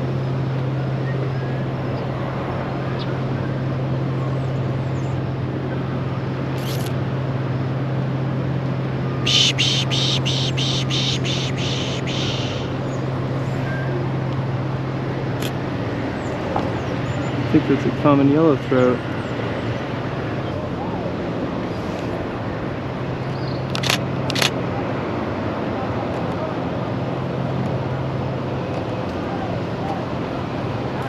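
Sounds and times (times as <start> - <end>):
steady low hum: 0.0 - 25.8
camera shutter clicking: 23.7 - 24.5.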